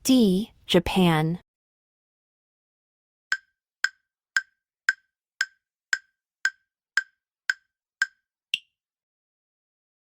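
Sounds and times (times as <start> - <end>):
countdown timer ticks: 3.3 - 8.7.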